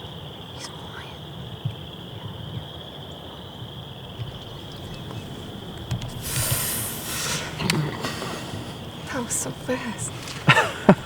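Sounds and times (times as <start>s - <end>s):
insect or frog trilling: 0.0s - 11.0s
loud rushing noise: 4.2s - 10.5s
sharp clicks: 4.2s - 10.6s.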